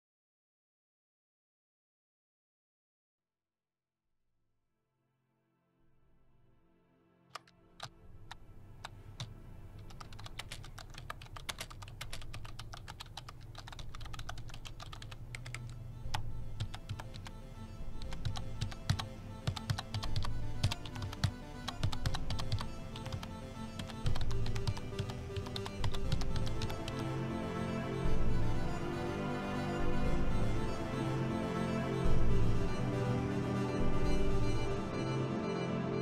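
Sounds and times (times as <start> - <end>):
background music: 5.8 - 36.0
laptop keyboard typing: 7.4 - 27.1.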